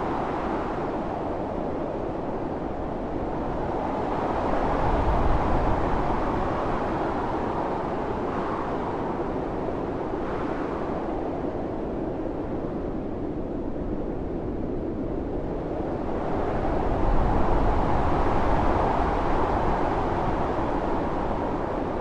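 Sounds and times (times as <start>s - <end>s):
strong blizzard wind blowing: 0.0s - 22.0s.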